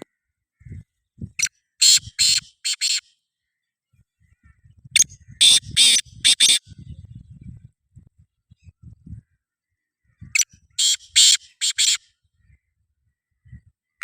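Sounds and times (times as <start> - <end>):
bird calling harsh notes: 1.4 - 3.2, 5.2 - 6.6, 10.3 - 12.2.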